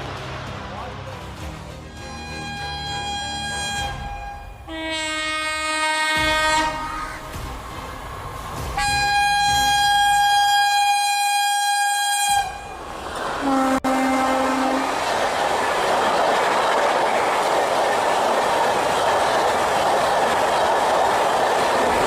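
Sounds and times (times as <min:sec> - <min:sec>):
fast train passing: 0:00.0 - 0:22.0
two-tone locomotive horn: 0:01.8 - 0:07.4, 0:08.8 - 0:14.9.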